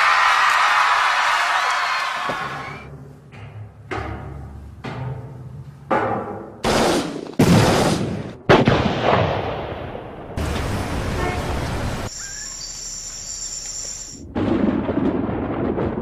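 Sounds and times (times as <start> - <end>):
high steady whistling tones: 12.1 - 14.2.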